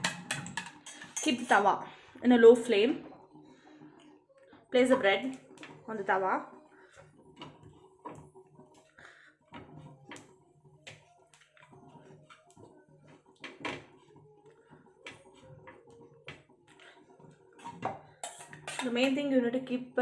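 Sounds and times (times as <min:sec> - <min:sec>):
light clicks and taps of utensils: 0:00.0 - 0:01.7, 0:09.5 - 0:19.3.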